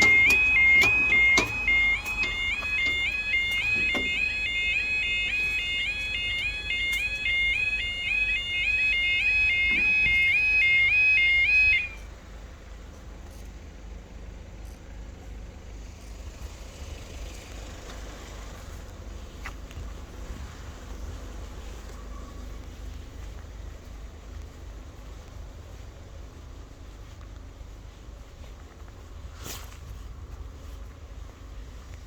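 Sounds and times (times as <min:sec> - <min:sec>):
level crossing alarm: 0:00.0 - 0:12.2.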